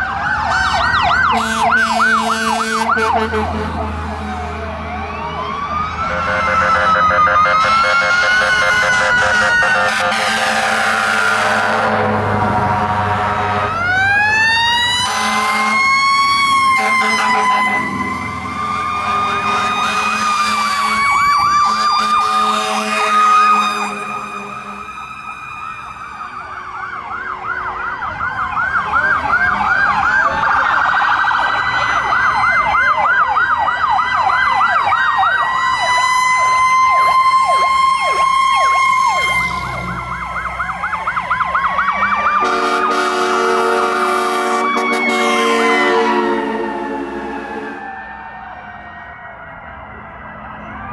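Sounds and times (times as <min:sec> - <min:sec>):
electronic siren yelping: 0:00.0 - 0:50.9
mechanical siren wailing: 0:00.0 - 0:50.9.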